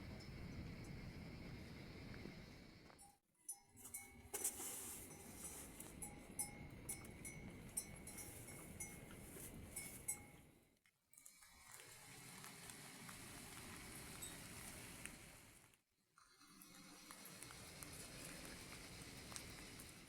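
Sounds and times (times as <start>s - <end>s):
steady rain: 12.1s - 15.6s, 17.4s - 20.0s.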